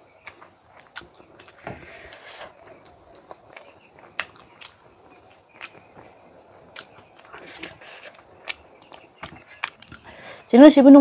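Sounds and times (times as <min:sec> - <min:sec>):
chewing and lip-smacking: 0:00.2 - 0:10.2
breathing: 0:10.0 - 0:10.5.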